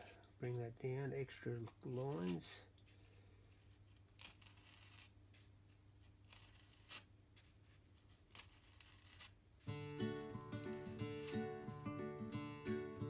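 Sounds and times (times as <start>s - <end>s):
scalpel scratching foam: 3.6s - 9.4s.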